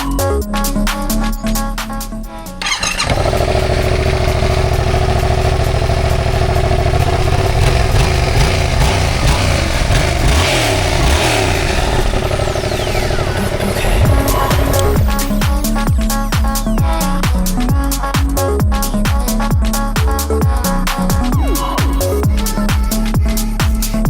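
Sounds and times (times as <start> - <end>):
motorcycle engine revving: 2.3 - 17.8.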